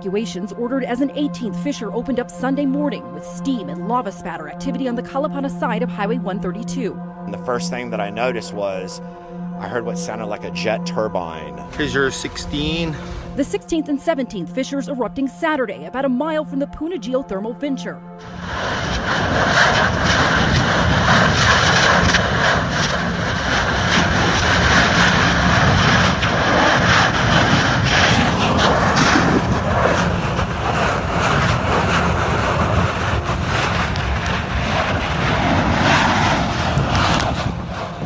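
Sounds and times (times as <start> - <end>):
lava eruption rushing noise: 18.2 - 38.0.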